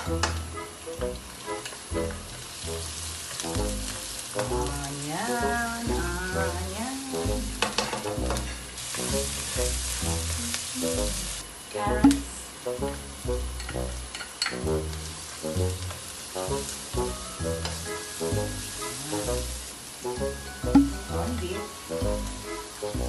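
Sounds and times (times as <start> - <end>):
background music with steady beat: 0.0 - 23.0
garlic and onion sizzling in oil: 0.0 - 23.0
wooden spatula scraping a wok: 7.5 - 11.3.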